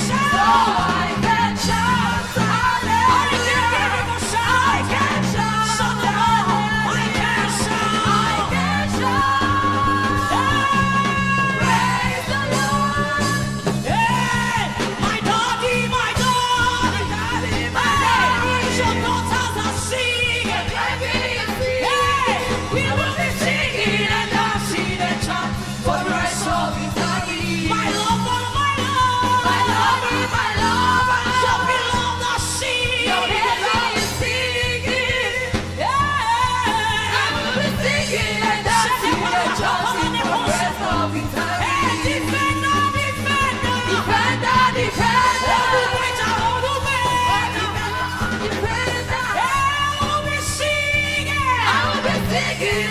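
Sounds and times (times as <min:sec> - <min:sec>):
keyboard and bass chords: 0:00.0 - 0:21.5
woman singing gospel: 0:00.0 - 0:52.9.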